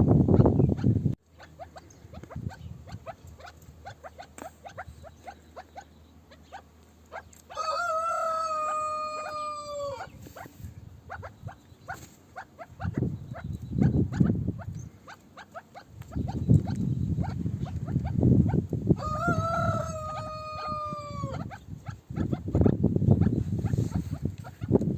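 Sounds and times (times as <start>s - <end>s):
partridges calling: 0.3s - 7.6s, 8.6s - 18.6s, 19.7s - 24.8s.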